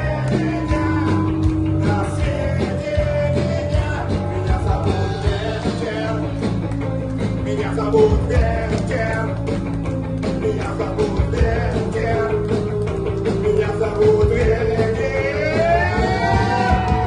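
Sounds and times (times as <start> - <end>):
singer holding long notes: 0.0 - 6.4, 13.3 - 17.0
rock band playing: 0.0 - 17.0.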